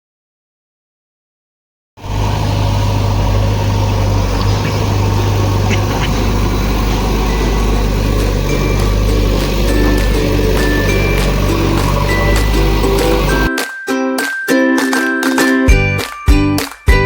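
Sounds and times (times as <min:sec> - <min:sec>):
diesel engine humming: 0:02.0 - 0:13.5.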